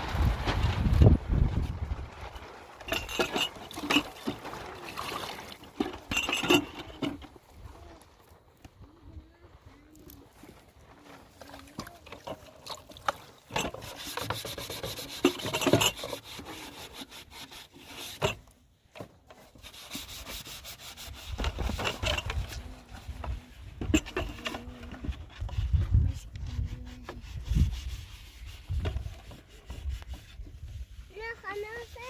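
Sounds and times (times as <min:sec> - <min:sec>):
scraping and rubbing strokes: 0:13.1 - 0:32.0.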